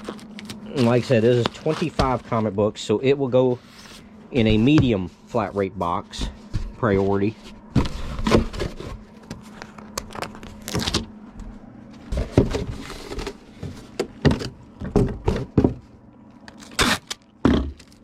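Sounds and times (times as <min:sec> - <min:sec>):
bubble wrap rustling and crinkling: 0:00.0 - 0:02.6
handling knocks and scrapes: 0:00.0 - 0:02.7, 0:03.5 - 0:15.9
faint steady hum: 0:00.0 - 0:18.0.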